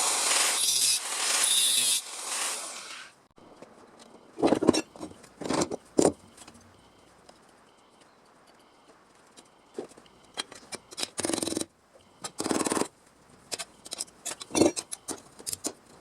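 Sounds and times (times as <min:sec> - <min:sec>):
power tool hissing and winding down: 0:00.0 - 0:03.1.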